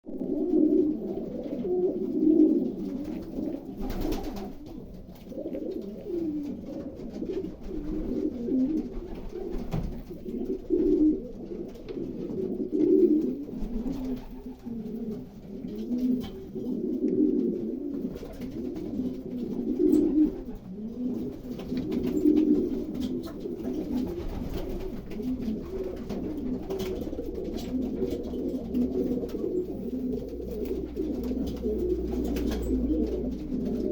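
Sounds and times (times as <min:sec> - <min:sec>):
pigeons cooing: 0:00.1 - 0:33.9.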